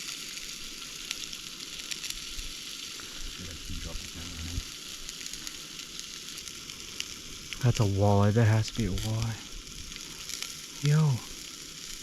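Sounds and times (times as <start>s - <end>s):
crackling hiss: 0.0s - 12.0s
faint low voice: 3.4s - 4.6s.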